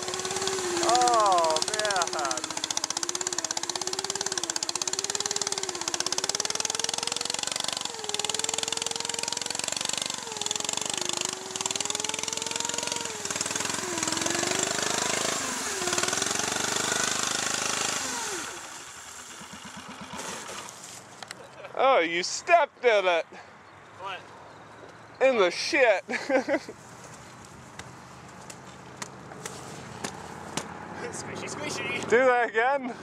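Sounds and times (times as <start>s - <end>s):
lawn tractor engine revving: 0.0s - 21.1s.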